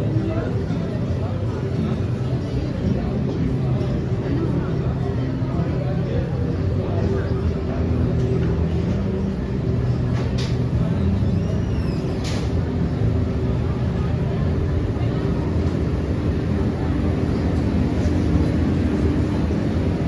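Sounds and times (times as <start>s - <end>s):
people's voices: 0.0s - 20.0s
vehicle engines rumbling: 0.0s - 20.0s
brief high squeal: 11.3s - 12.5s.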